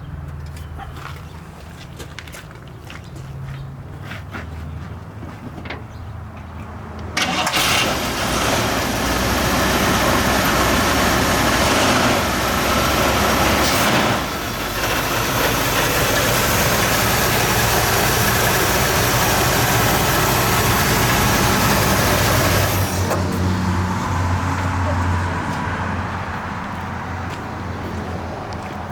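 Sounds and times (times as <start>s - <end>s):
car engine starting: 7.0s - 26.4s
car engine idling: 7.2s - 26.9s.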